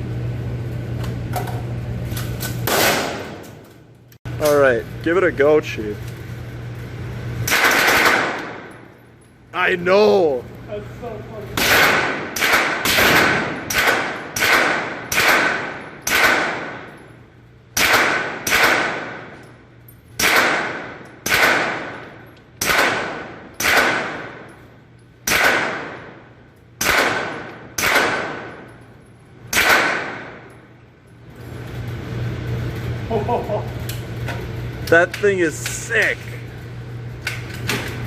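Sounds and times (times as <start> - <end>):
suppressed gunshots with echo: 7.5 - 8.7, 11.6 - 16.9, 17.8 - 19.3, 20.2 - 24.5, 25.2 - 26.2, 26.8 - 28.7, 29.5 - 30.5.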